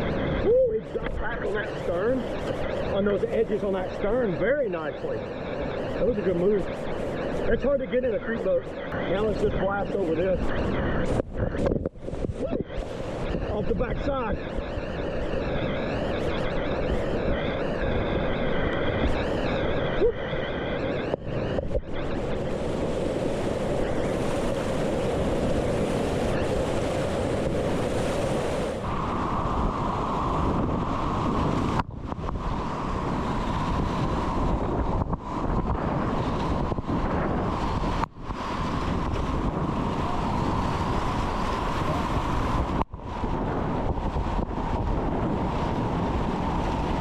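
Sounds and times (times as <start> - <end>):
wind buffeting microphone: 0.0 - 47.0
rapids rushing: 12.0 - 30.2.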